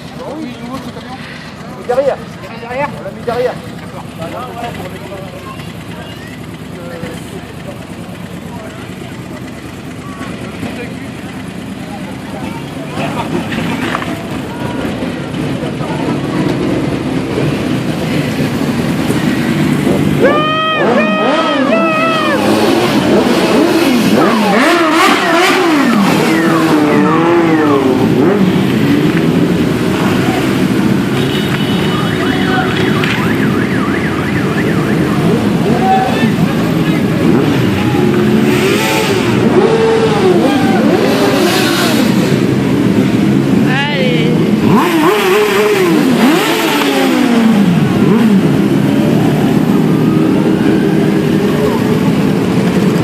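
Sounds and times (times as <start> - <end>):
motorcycles revving: 0.0 - 53.0
siren warbling: 20.2 - 22.8, 24.2 - 28.4.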